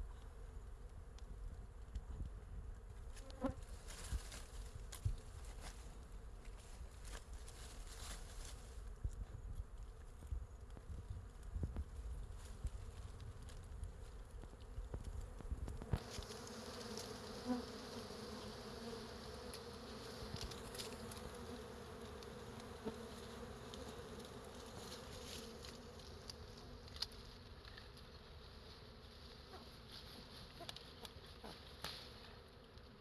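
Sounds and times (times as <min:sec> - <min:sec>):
bees buzzing: 0:15.8 - 0:26.8.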